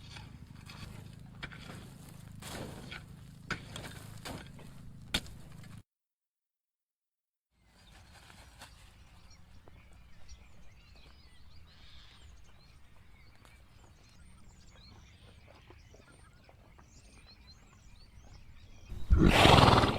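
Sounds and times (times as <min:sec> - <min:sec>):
small birds chirping: 0:07.6 - 0:19.9.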